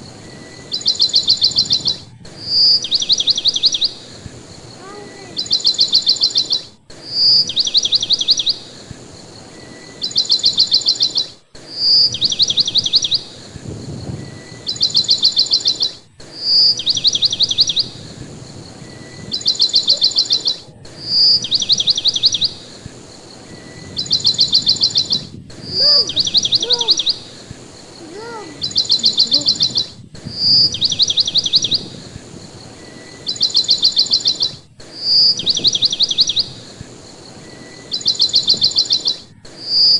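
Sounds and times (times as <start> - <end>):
bird song trills: 0.0 - 39.9
bright bird whistle: 0.0 - 39.9.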